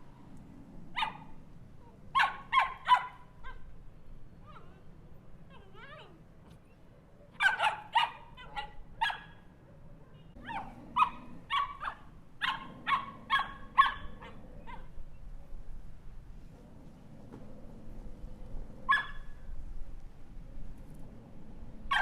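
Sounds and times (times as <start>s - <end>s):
small dog barking: 0.9s - 1.4s, 2.1s - 3.7s, 7.3s - 9.4s, 10.2s - 15.0s, 18.9s - 19.3s
dog whining: 4.4s - 6.2s.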